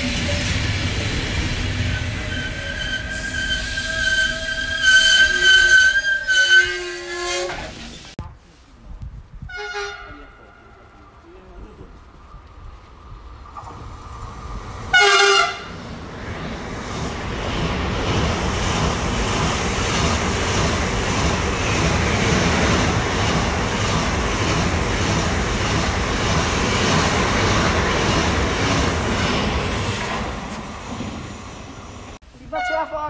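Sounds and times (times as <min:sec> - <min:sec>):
train wheels rumbling on rail: 0:00.0 - 0:08.2, 0:09.1 - 0:32.2
train horn blast: 0:09.5 - 0:10.4, 0:14.9 - 0:15.8, 0:32.6 - 0:32.9.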